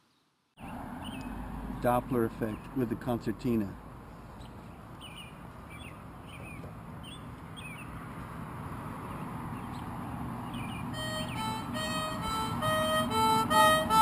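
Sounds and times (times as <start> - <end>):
steady outdoor hiss: 0.0 - 14.0
small birds chirping: 0.1 - 2.9, 4.2 - 8.0, 9.0 - 11.7.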